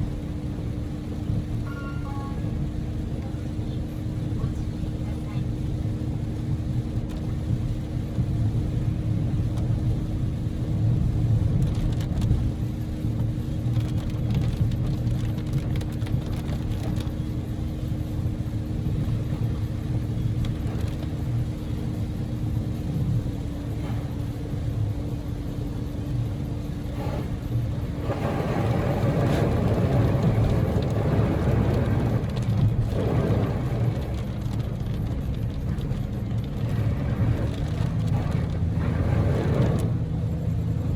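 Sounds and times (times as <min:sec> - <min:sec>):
car engine hum: 0:00.0 - 0:40.9
road noise inside car: 0:00.0 - 0:40.9
rushing hiss of rain and spray: 0:17.9 - 0:34.8, 0:36.6 - 0:40.0.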